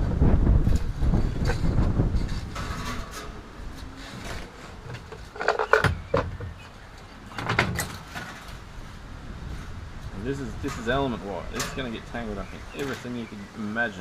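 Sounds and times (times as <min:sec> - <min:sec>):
metal wire clinking and scraping: 0:00.7 - 0:06.2, 0:09.5 - 0:13.2.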